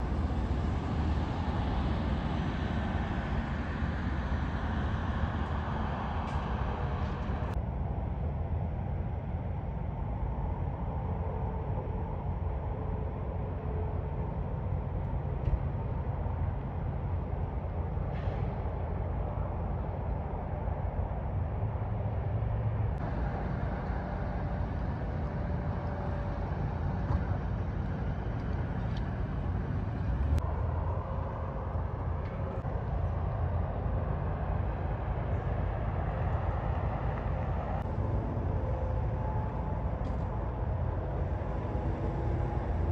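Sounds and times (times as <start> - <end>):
highway traffic rumble: 0.0 - 42.9.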